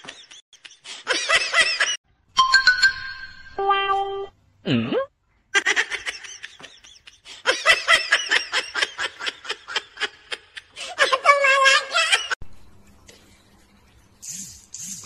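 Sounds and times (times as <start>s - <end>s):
high-pitched laughter: 5.6s - 12.4s.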